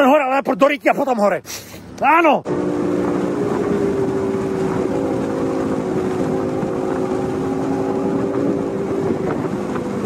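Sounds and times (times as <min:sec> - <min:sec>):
wind and road noise: 0:00.0 - 0:10.0
car engine running: 0:02.4 - 0:10.0.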